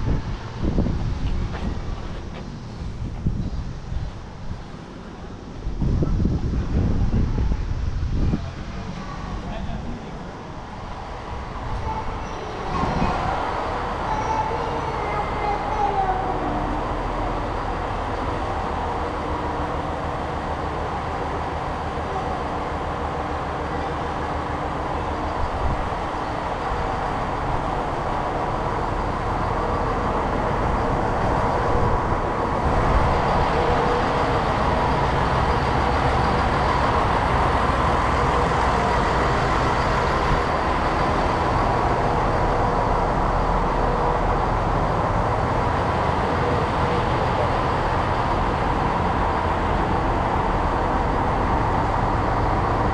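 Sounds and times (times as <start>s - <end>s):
train rumbling: 0.0s - 52.9s.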